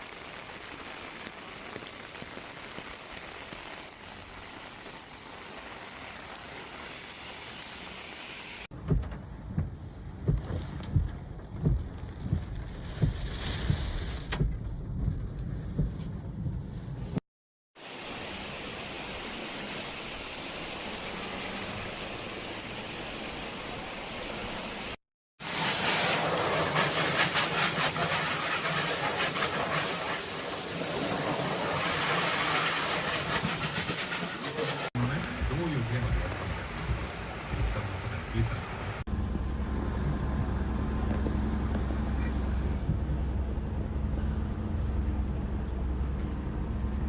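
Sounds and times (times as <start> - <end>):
flowing water: 0.0 - 8.7, 17.8 - 39.1
heavy rain: 0.0 - 8.7, 17.8 - 39.1.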